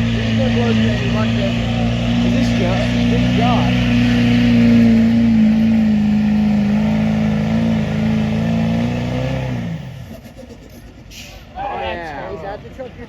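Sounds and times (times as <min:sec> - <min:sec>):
engine running at high revs: 0:00.0 - 0:10.2.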